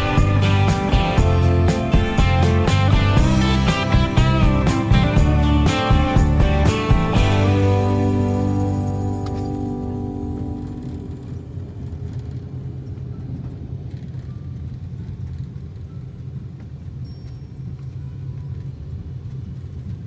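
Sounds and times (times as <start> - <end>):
music: 0.0 - 12.4
car driving rumble: 0.0 - 15.8.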